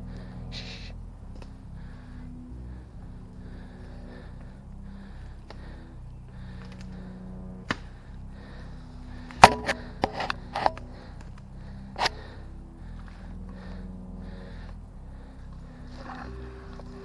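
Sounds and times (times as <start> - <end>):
airsoft rifle shots: 9.4 - 9.9.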